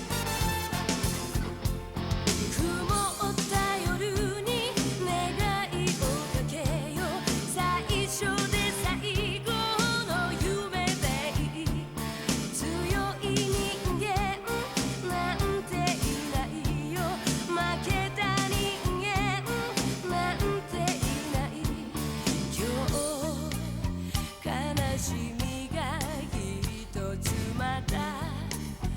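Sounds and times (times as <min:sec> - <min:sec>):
band with steady drum beat: 0:00.0 - 0:28.9
person singing with vibrato: 0:02.3 - 0:28.9.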